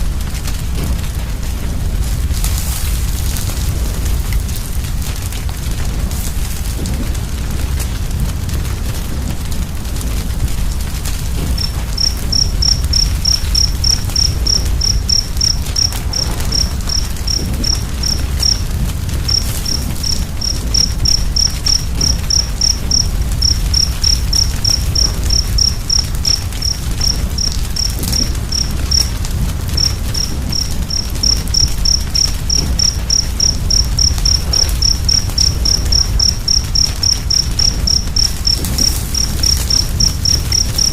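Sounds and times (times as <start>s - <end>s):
wood fire crackling: 0.0s - 40.9s
cricket chirping: 11.2s - 40.9s.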